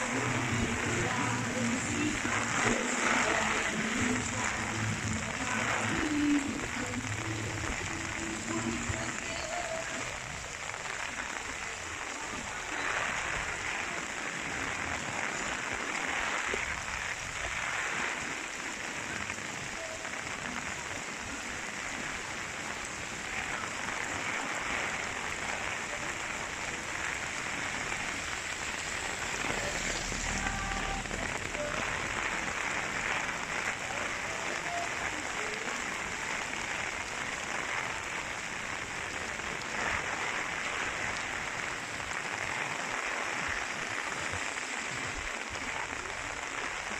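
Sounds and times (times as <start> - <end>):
heavy rain hissing on street: 0.0 - 46.9.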